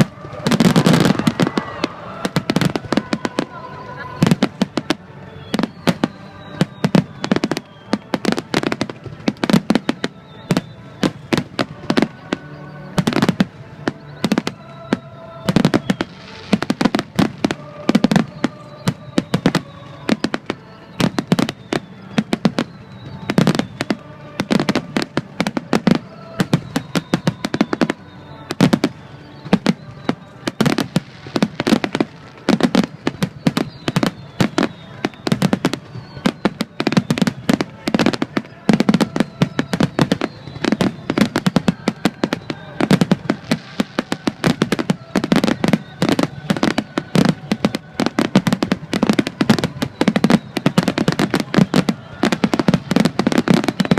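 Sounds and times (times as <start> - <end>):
fireworks bursts: 0.0 - 53.9
music playing: 0.0 - 53.9.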